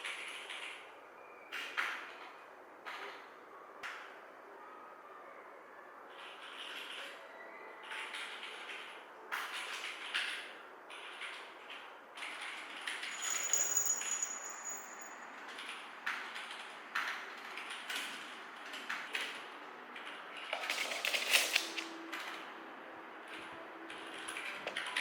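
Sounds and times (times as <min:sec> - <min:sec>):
thin high tone: 0:13.1 - 0:15.2.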